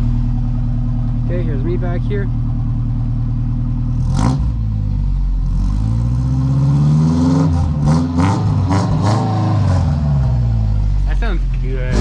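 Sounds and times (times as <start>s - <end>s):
truck engine revving: 3.7s - 12.0s.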